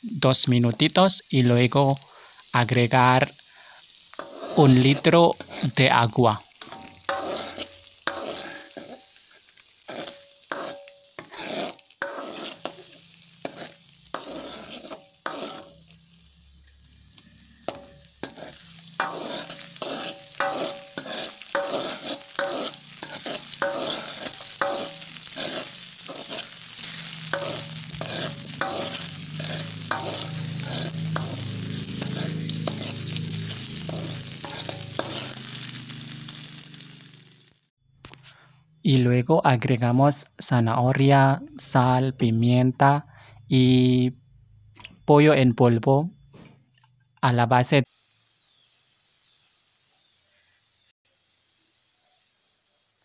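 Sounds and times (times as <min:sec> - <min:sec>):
food frying in oil: 0:00.0 - 0:37.7, 0:47.9 - 0:53.0
spatula scraping metal wok: 0:04.0 - 0:37.4.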